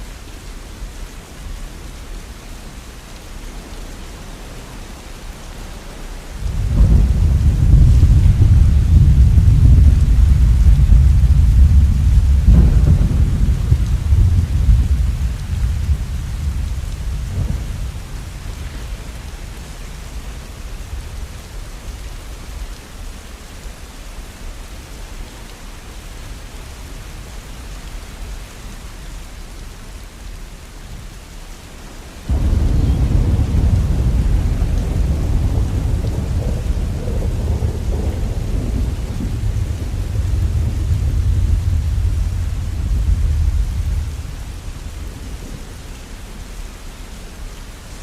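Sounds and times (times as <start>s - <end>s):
steady rain: 0.0s - 48.0s
loud deep thunder rumble: 6.4s - 20.5s, 32.3s - 45.8s
low thunder rumble: 6.4s - 22.1s, 32.3s - 46.3s.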